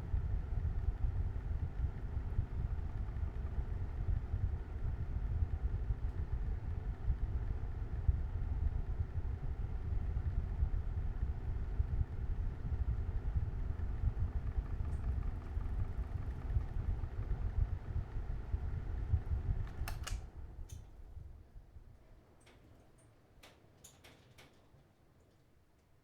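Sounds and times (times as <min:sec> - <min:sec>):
box fan running: 0:00.0 - 0:25.8
fan switch clicks: 0:19.6 - 0:21.0.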